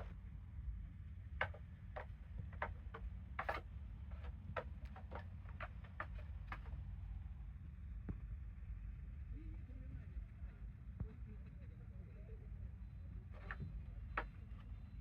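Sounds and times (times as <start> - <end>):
hooves tapping on hard floor: 1.4 - 6.8.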